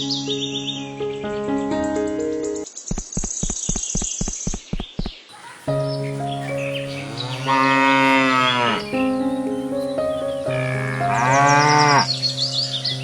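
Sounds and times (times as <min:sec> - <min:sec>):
background music with held notes: 0:05.7 - 0:13.0
cow mooing: 0:06.8 - 0:09.1, 0:10.4 - 0:13.0.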